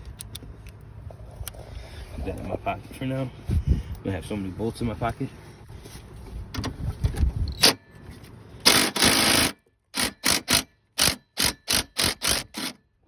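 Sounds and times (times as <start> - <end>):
cordless drill running in bursts: 8.7 - 12.8.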